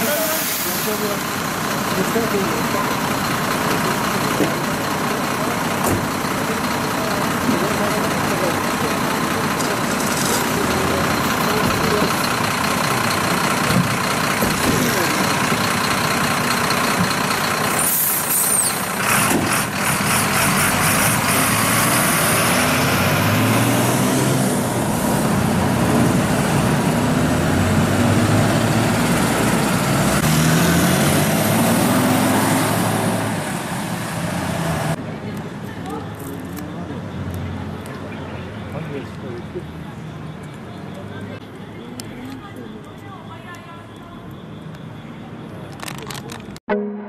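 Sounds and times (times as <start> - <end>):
people talking: 0.0 - 3.1, 3.8 - 12.5, 14.4 - 15.5, 35.0 - 46.6
truck engine idling: 0.0 - 22.2.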